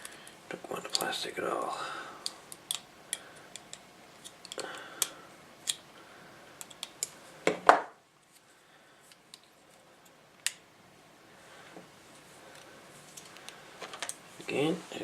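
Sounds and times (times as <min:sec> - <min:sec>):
small parts clicking: 0:02.2 - 0:05.8.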